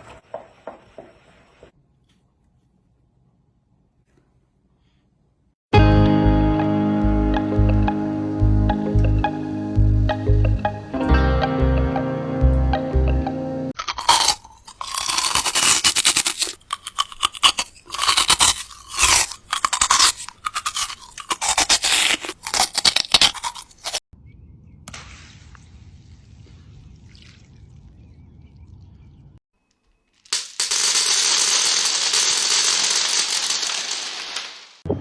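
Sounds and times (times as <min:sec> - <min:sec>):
crunching and scraping strokes: 0:13.8 - 0:24.0.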